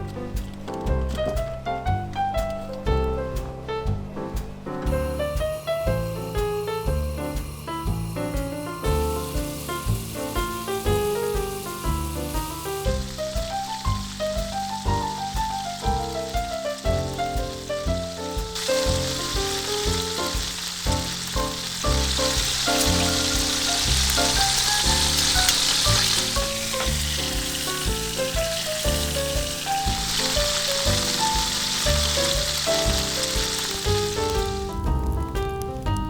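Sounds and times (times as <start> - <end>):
background music: 0.0 - 36.0
food sizzling in a frying pan: 5.0 - 35.2.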